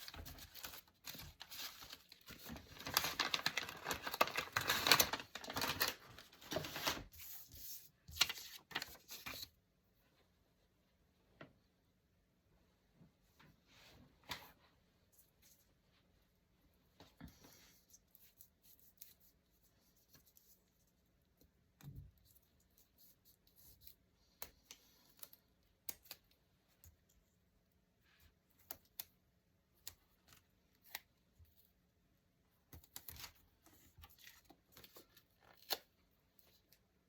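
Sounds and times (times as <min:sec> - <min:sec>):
paper and tools rustling: 0:00.0 - 0:09.6.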